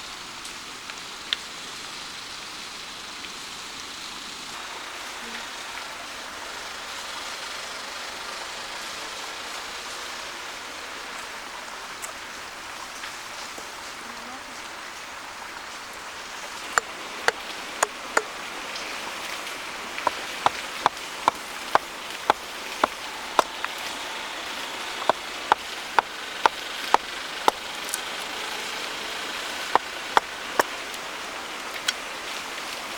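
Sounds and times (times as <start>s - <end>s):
steady hiss: 0.0s - 32.9s
tool striking wood: 20.0s - 27.9s, 29.6s - 30.7s.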